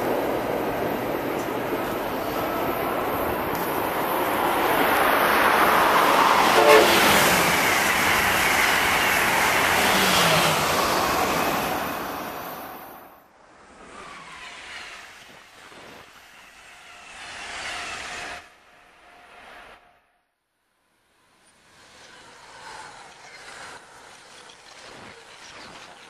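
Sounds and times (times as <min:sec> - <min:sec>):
high-speed train passing: 0:00.0 - 0:20.2, 0:21.1 - 0:26.0
train horn toot: 0:06.3 - 0:07.4.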